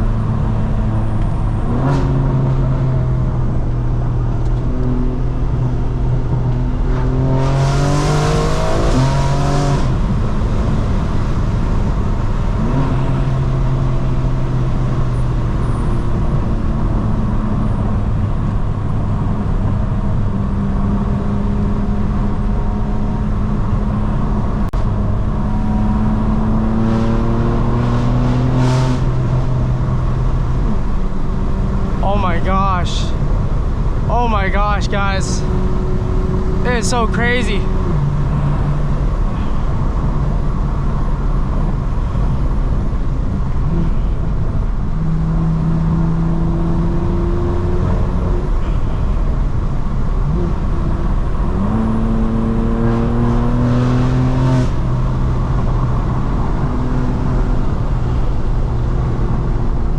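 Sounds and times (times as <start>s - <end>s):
loud car engine revving: 0.0s - 10.2s, 25.5s - 30.7s, 50.2s - 59.4s.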